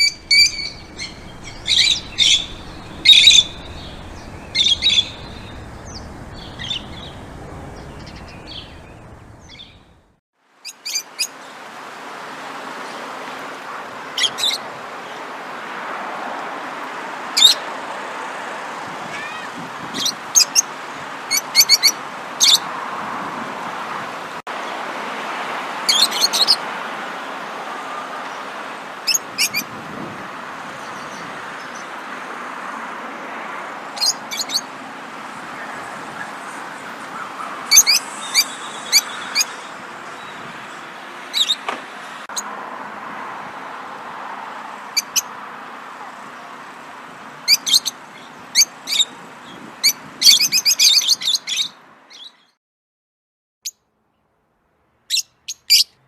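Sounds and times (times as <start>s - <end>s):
songbirds chirping: 0.0s - 11.7s.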